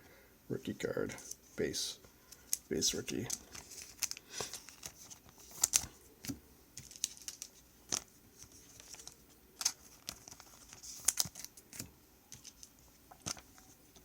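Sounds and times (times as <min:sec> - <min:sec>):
light rustling of cards: 0:01.0 - 0:14.0.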